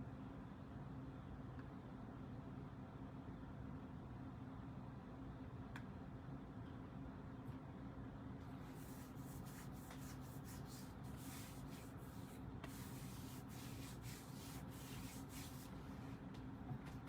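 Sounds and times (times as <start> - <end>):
low electrical hum: 0.0 - 17.0
rubbing and rustling: 8.6 - 16.3.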